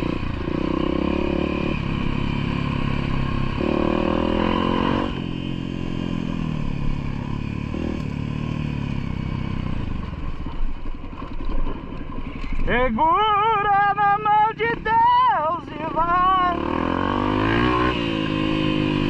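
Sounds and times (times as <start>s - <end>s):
off-road vehicle engine revving: 0.0s - 10.0s, 15.8s - 19.0s.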